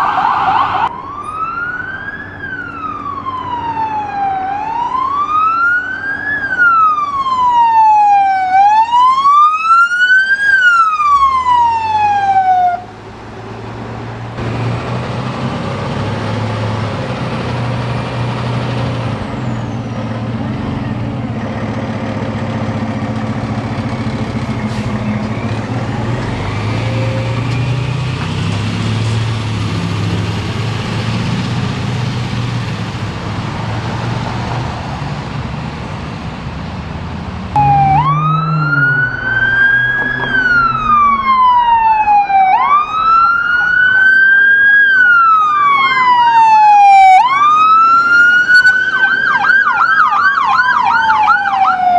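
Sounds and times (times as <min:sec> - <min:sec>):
siren wailing: 0:00.0 - 0:14.2, 0:37.5 - 0:51.9
heavy vehicle engine rumble: 0:00.0 - 0:51.9
road noise: 0:00.0 - 0:51.9.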